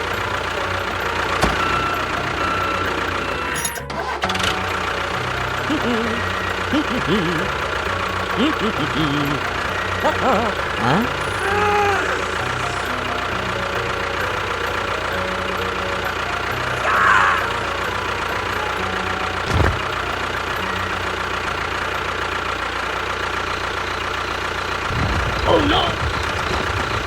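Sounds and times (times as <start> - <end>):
small tractor engine running: 0.0 - 27.0
thump: 19.5 - 19.8.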